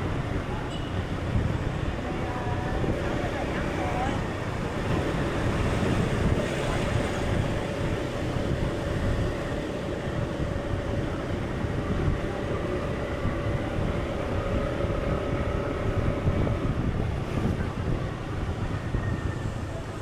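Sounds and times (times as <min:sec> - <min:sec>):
dense low rumbling noise: 0:00.0 - 0:20.0.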